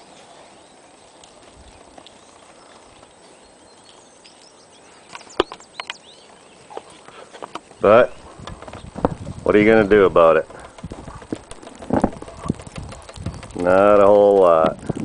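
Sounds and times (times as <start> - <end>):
outdoor background hiss: 0.0 - 15.0
sharp knocks or clicks: 8.4 - 14.8.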